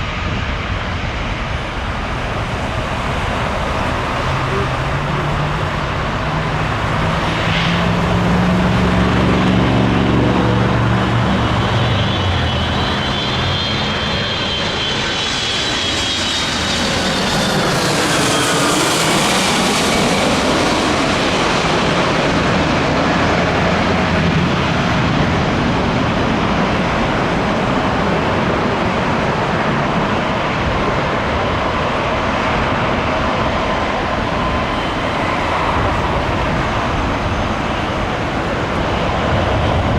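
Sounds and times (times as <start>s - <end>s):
low engine hum: 0.0s - 27.3s
jet engine whine: 0.0s - 39.9s
jet roar: 0.0s - 39.9s.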